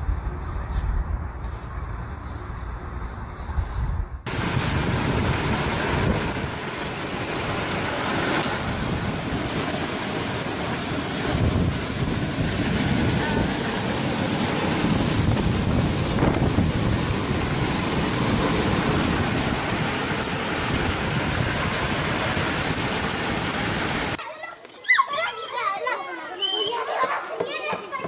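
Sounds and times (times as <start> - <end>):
wind buffeting microphone: 3.2 - 24.2
wind rushing: 3.2 - 24.2
water rushing in a storm: 4.3 - 24.2.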